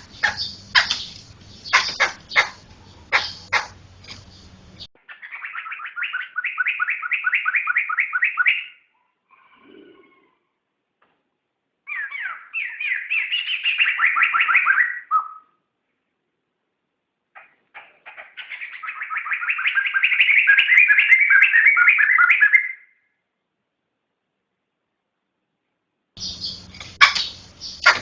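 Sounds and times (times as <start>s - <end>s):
bird chattering song: 0.0s - 8.9s, 11.9s - 15.5s, 17.4s - 22.8s, 26.2s - 28.0s.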